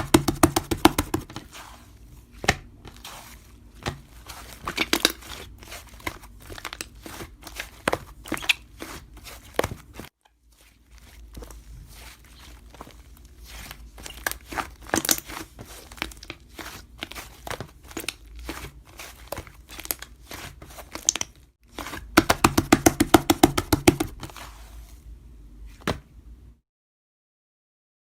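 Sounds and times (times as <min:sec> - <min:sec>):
crinkly rustling: 0:01.4 - 0:21.9.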